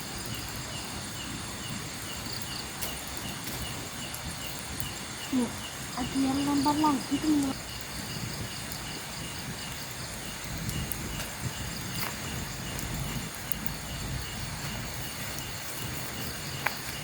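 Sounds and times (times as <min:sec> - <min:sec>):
crickets chirping: 0:00.0 - 0:17.0
low rumble: 0:07.0 - 0:16.6.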